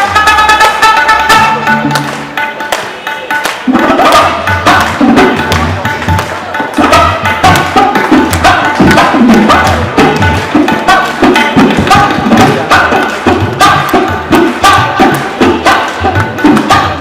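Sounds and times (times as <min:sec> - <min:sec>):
drum and hand percussion strikes: 0:00.0 - 0:17.0.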